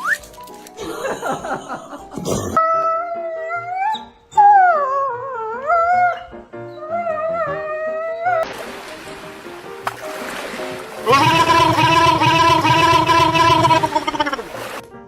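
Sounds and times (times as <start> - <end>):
background music: 0.0 - 15.0
dog howling: 6.8 - 8.4, 11.1 - 14.4.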